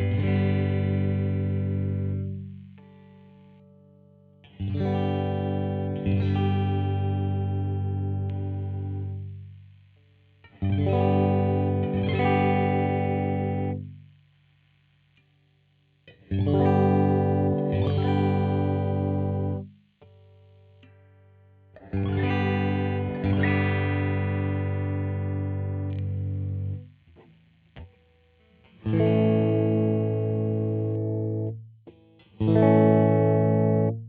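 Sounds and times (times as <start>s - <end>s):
electric guitar chords: 0.0s - 9.6s, 10.4s - 14.1s, 16.0s - 34.0s.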